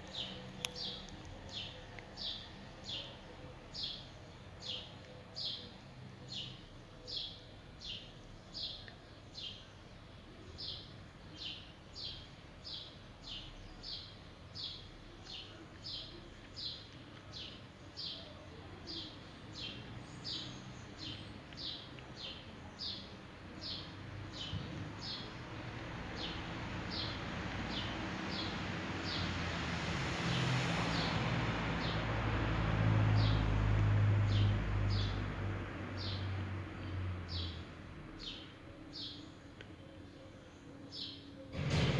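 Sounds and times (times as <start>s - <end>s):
bird chirping: 0.0s - 29.3s.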